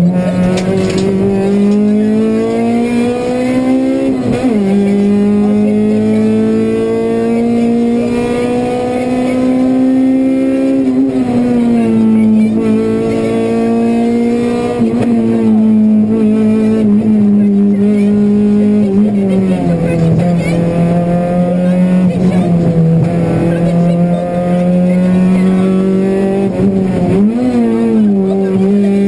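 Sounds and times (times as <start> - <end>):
car engine pulling hard: 0.0 - 29.0.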